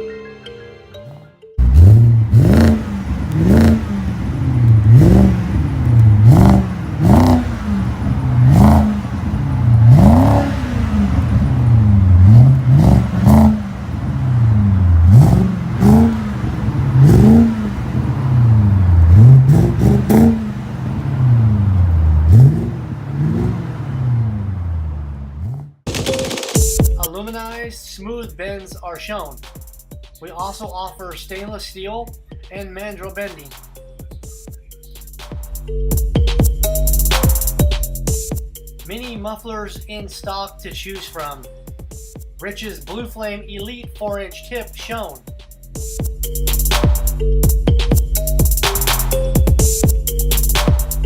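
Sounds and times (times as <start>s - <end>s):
car engine revving: 1.6s - 25.8s, 44.7s - 51.0s.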